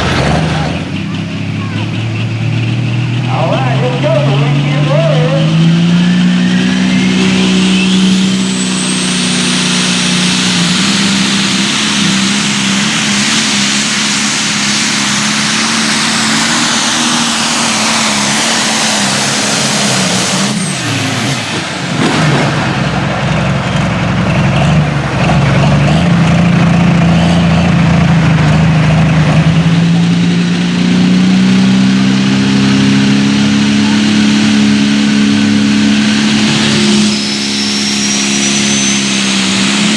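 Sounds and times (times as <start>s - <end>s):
diesel tractor engine at full throttle: 0.0s - 39.9s
turbo whistle: 6.4s - 10.9s, 36.5s - 39.9s.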